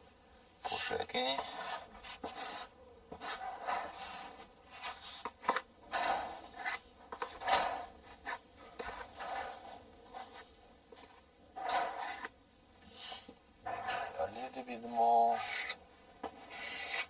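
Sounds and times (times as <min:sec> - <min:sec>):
filling knife scraping compound: 0:00.6 - 0:04.3, 0:15.3 - 0:15.8, 0:16.4 - 0:17.0.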